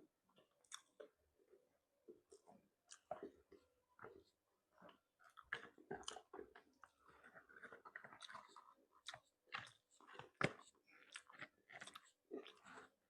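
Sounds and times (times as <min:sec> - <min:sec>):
chewing and biting seafood: 0:00.6 - 0:01.1, 0:04.9 - 0:13.0.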